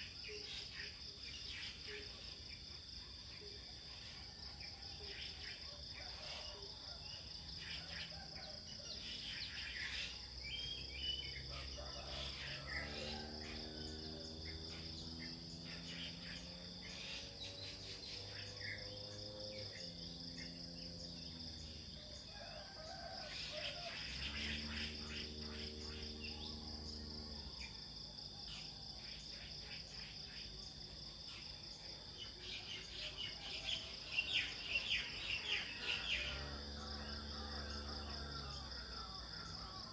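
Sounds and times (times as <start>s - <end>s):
crickets droning: 0.0s - 39.9s
bird chirps: 8.9s - 13.2s.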